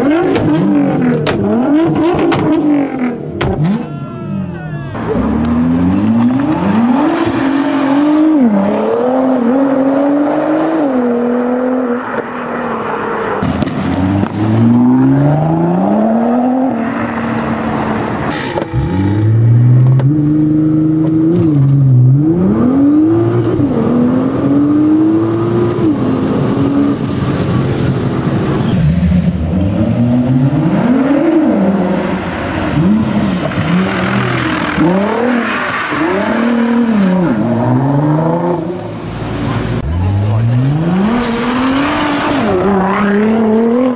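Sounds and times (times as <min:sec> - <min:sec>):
car engine revving hard: 0:00.0 - 0:03.9, 0:29.5 - 0:43.9.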